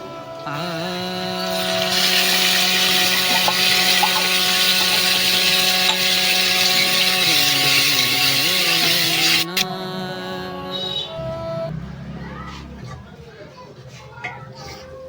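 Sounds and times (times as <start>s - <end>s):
electric blender running: 0.5s - 9.7s.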